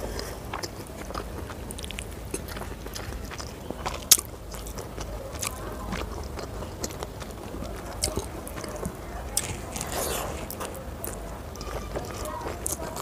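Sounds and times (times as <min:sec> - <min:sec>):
chewing with mouth clicks: 0:00.0 - 0:13.0
fingers squishing through rice: 0:00.0 - 0:13.0.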